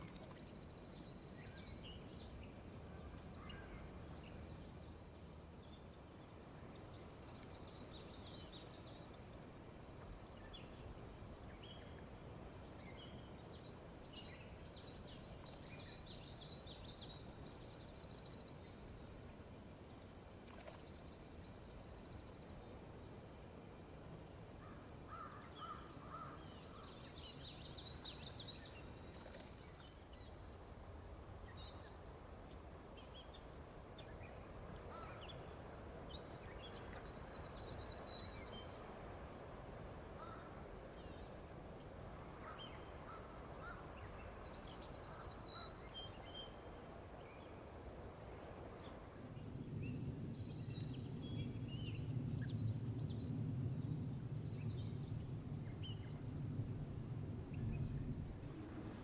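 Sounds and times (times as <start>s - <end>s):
low steady rumble: 47.3s - 59.0s.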